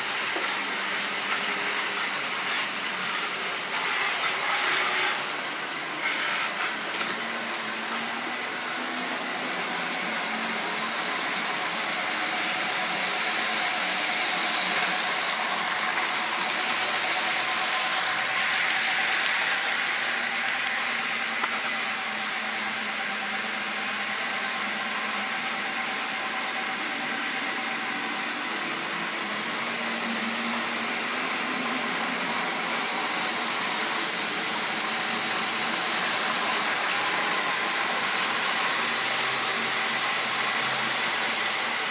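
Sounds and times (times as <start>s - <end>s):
model train motor whirring: 0.1s - 41.9s
wheels rolling on rails: 12.3s - 22.4s.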